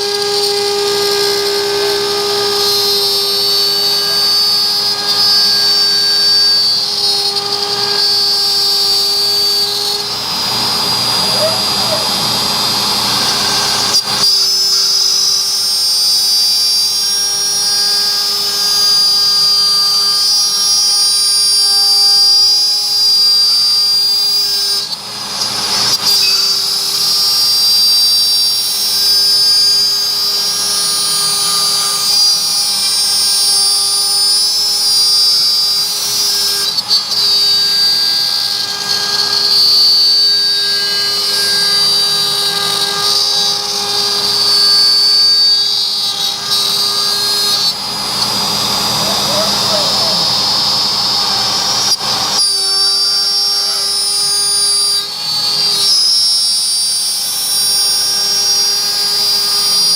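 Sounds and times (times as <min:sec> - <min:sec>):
router spindle cutting wood: 0:00.0 - 0:59.9.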